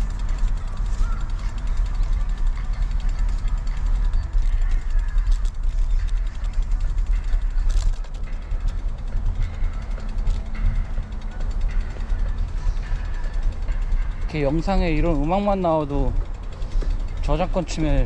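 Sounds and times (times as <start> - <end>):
bike creaking and ticking: 0.0 - 18.0.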